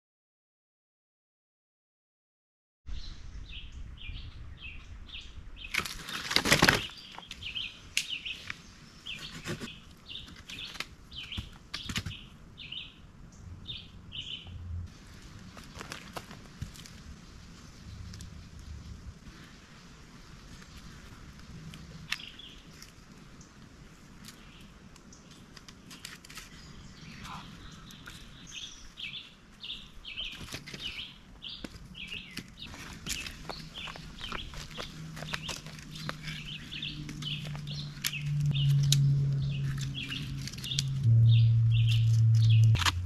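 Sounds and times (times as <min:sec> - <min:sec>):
bird chirping: 0:06.8 - 0:14.6, 0:26.0 - 0:43.0
low steady hum: 0:31.8 - 0:43.0.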